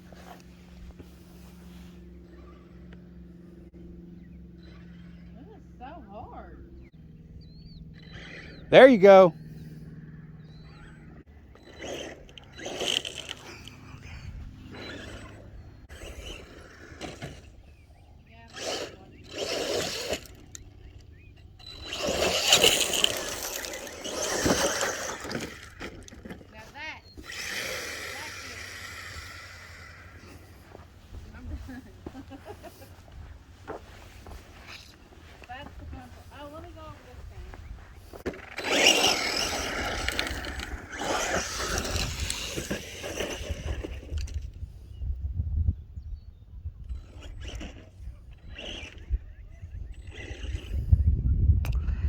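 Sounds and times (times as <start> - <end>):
rc truck tyres scrabbling on dirt: 10.7 - 44.8, 46.9 - 51.0.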